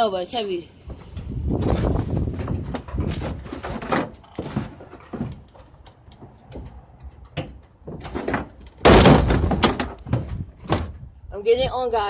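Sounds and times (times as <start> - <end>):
refrigerator knocking and scraping: 0.9 - 6.8, 7.4 - 11.1.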